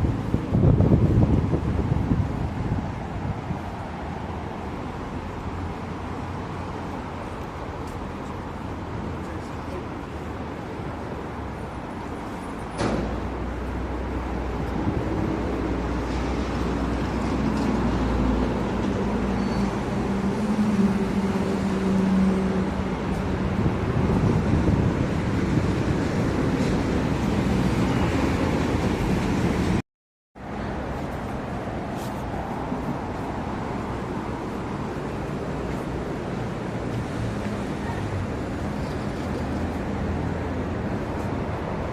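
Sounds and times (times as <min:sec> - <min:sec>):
deep engine rumble of bus: 0:00.0 - 0:29.8
vehicle engines and tyres: 0:00.0 - 0:29.8, 0:30.4 - 0:41.9.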